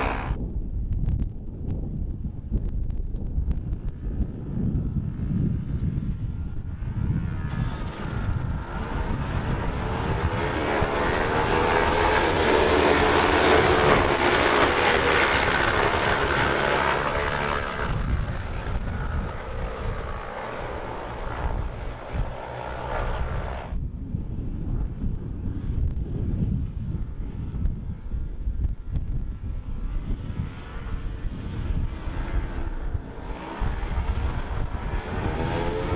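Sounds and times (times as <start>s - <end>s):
race motorcycles passing: 0.0s - 0.4s, 6.4s - 23.8s, 29.6s - 35.9s
wind buffeting microphone: 0.0s - 35.9s.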